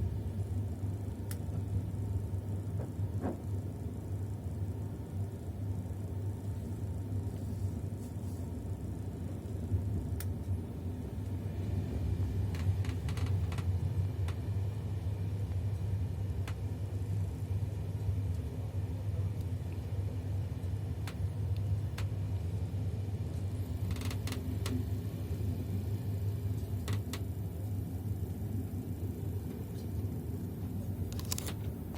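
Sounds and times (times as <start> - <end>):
train running rumble: 9.1 - 16.6.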